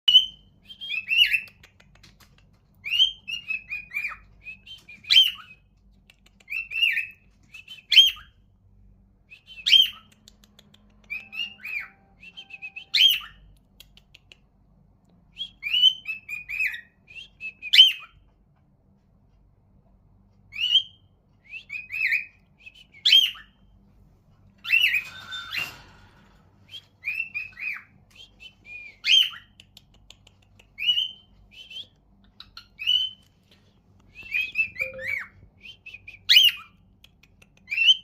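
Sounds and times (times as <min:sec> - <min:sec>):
cockatiel whistling and chirping: 0:00.1 - 0:01.6, 0:02.8 - 0:05.6, 0:06.5 - 0:08.4, 0:09.4 - 0:10.2, 0:11.0 - 0:13.5, 0:15.3 - 0:18.2, 0:20.5 - 0:23.6, 0:24.6 - 0:25.8, 0:26.7 - 0:29.6, 0:30.8 - 0:33.3, 0:34.1 - 0:36.8, 0:37.7 - 0:38.0.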